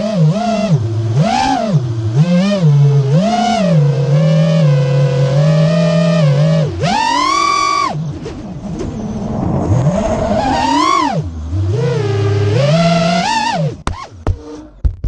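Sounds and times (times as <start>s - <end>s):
quadcopter motors whining: 0.0s - 14.8s.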